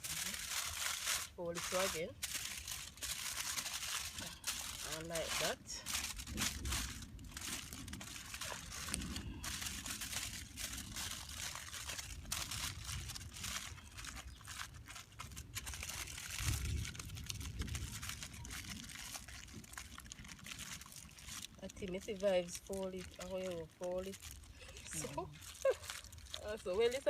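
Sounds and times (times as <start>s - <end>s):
aluminium foil crinkling: 0.0s - 27.0s.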